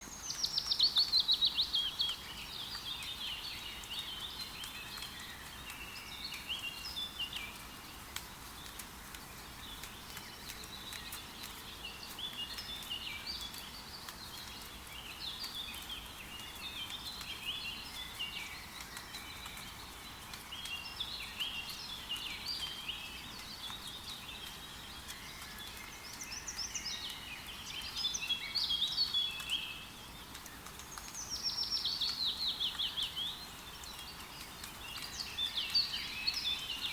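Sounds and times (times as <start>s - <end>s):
forest birds singing and calling: 0.0s - 36.9s
light rain patter: 0.0s - 36.9s.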